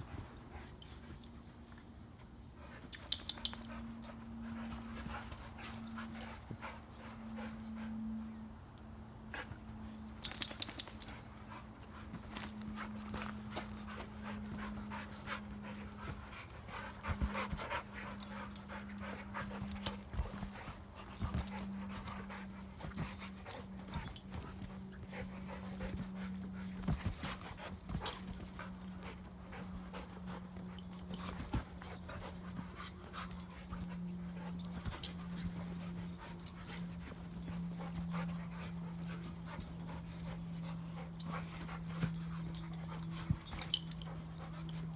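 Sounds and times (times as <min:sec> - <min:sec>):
dogs panting and whimpering: 0:00.0 - 0:08.6, 0:09.2 - 0:44.9
trampoline knocks and rattles: 0:09.4 - 0:44.9.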